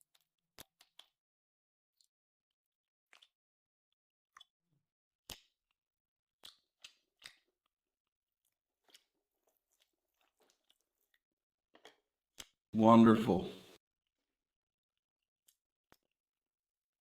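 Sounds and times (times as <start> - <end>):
person chewing steak: 3.1 - 3.4, 5.3 - 5.6, 6.4 - 7.7, 8.4 - 12.6.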